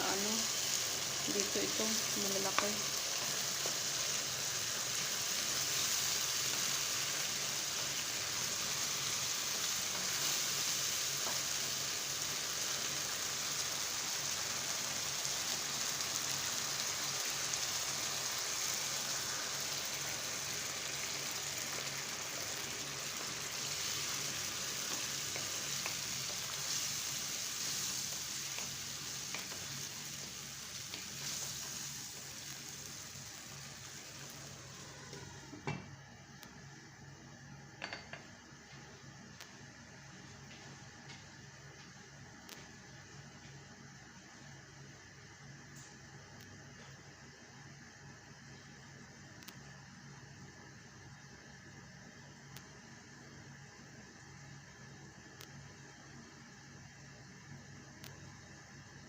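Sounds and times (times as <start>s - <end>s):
food sizzling in a pan: 0.0s - 35.6s.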